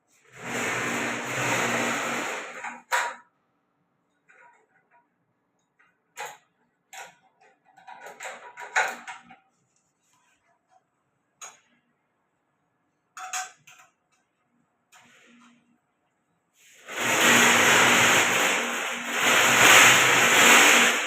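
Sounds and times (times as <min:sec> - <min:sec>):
sharp clicks and clatters: 0:04.0 - 0:09.9, 0:10.7 - 0:11.9, 0:13.2 - 0:15.7.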